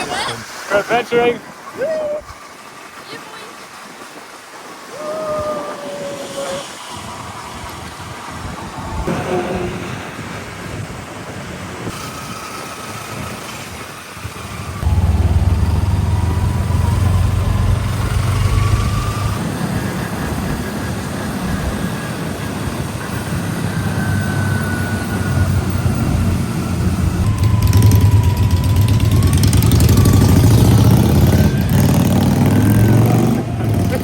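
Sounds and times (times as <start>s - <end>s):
broad rushing noise: 0.0s - 23.1s
motorcycle engine drone: 8.6s - 34.0s.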